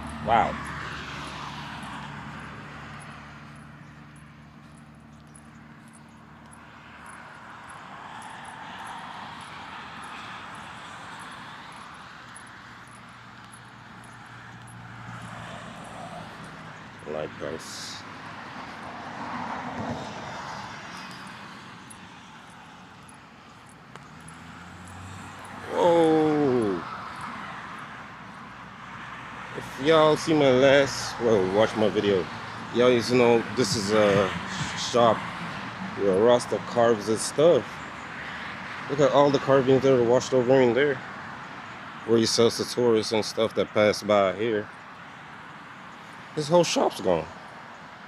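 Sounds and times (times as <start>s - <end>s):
engine noise: 0.0s - 37.5s.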